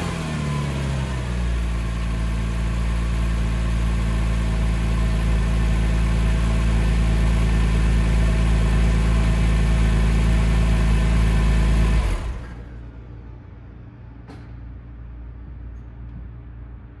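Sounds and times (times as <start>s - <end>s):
car engine idling: 0.0s - 13.3s.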